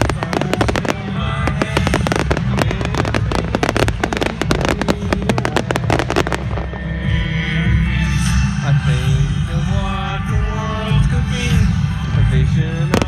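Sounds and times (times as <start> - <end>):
fireworks crackling: 0.0 - 7.4
low rumble: 0.0 - 8.2.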